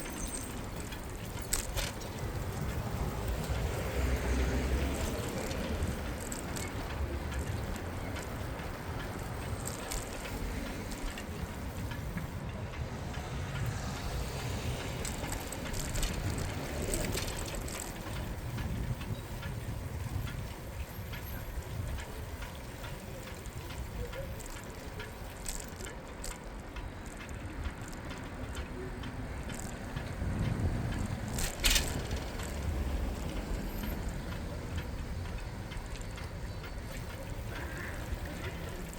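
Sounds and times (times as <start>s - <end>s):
bicycle riding rumble: 0.0s - 38.9s
bike clicks and rattles: 0.0s - 38.9s.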